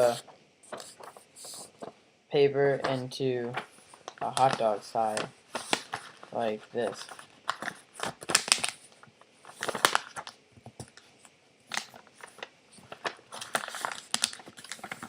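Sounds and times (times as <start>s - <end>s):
paper being folded and creased: 0.0s - 1.9s, 3.6s - 8.8s, 9.4s - 10.4s, 11.7s - 15.0s.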